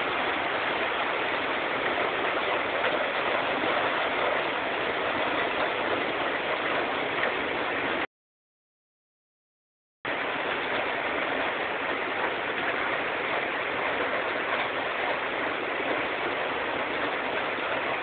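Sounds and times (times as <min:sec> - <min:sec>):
hail and rain pelting: 0:00.0 - 0:08.0.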